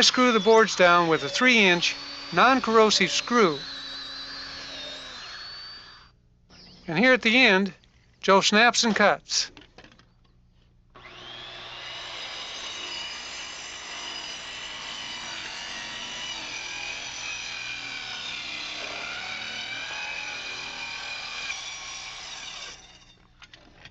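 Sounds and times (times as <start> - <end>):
circular saw cutting wood: 0.0 - 6.1, 11.0 - 23.2.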